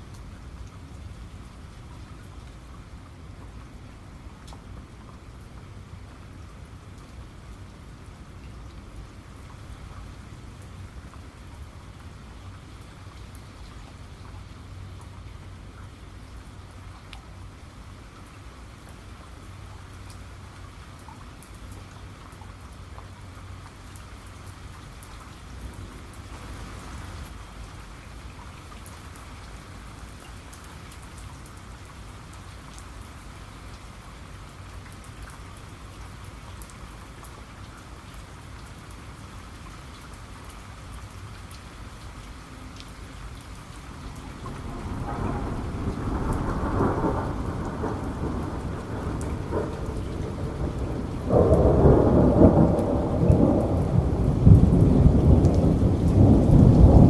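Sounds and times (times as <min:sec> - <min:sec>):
steady rain falling: 0:00.0 - 0:57.0
raindrops ticking: 0:39.6 - 0:57.0
rumble of thunder: 0:44.1 - 0:57.0.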